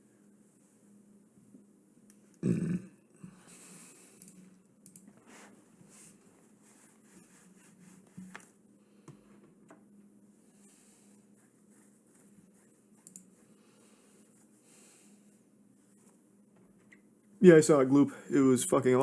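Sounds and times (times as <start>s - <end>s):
throaty vocal sound: 2.4s - 2.9s
faint clicks: 4.2s - 5.1s, 13.0s - 13.3s.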